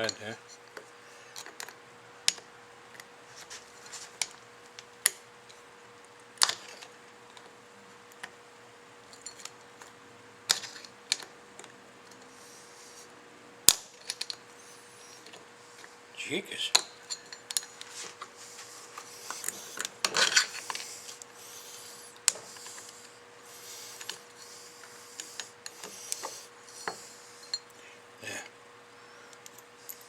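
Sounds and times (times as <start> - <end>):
screwdriver scraping metal: 17.0 - 27.7
screwdriver clicking on metal: 19.1 - 23.0, 23.6 - 27.6.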